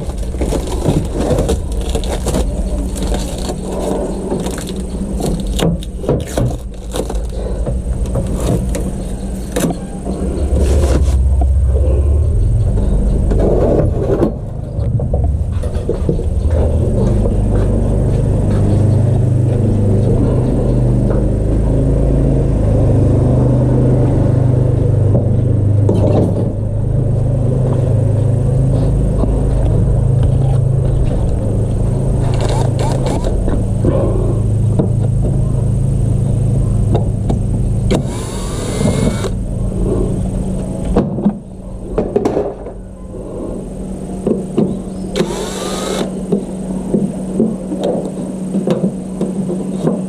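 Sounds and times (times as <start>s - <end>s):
hiss with rising whine: 37.8s - 40.8s
electric mixer motor humming: 37.9s - 39.4s, 45.1s - 46.4s.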